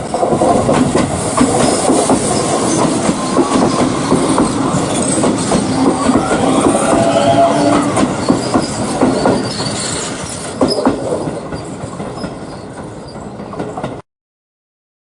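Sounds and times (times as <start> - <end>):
train wheels knocking on rail joints: 0.0 - 14.0
wheel squeal: 1.6 - 13.4.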